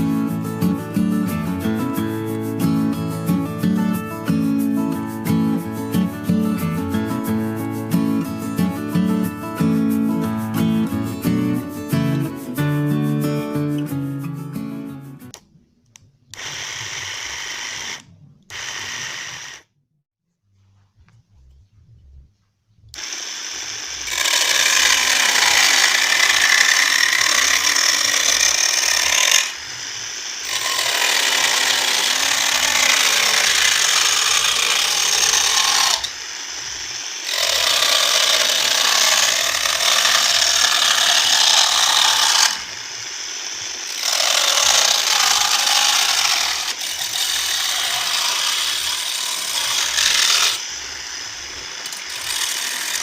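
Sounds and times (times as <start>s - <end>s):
mini chainsaw cutting wood: 16.3s - 19.7s, 23.0s - 53.0s.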